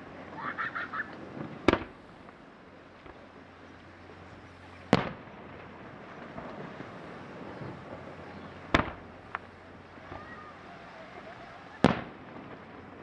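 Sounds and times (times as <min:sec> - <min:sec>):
sharp firework crack: 0:01.1 - 0:02.4, 0:04.9 - 0:13.0.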